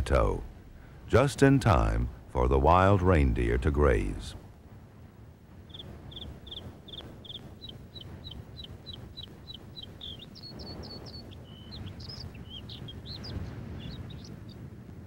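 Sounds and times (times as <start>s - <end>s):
low outdoor rumble: 0.0s - 15.0s
small bird chirping: 5.7s - 14.6s.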